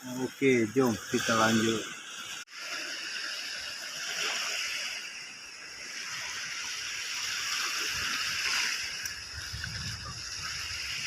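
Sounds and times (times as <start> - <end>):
shallow water splashing: 0.1 - 11.0.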